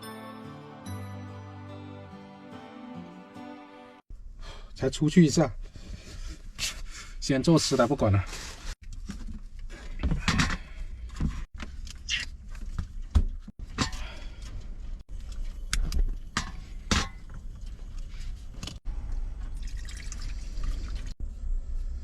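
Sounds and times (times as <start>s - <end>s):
water pouring and splashing: 18.6s - 21.2s.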